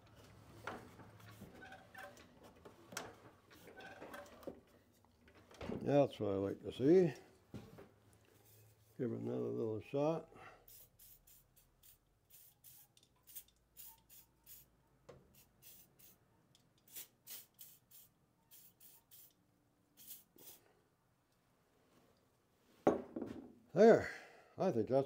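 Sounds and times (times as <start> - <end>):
aerosol spray squirts: 16.9 - 19.4, 20.0 - 20.6.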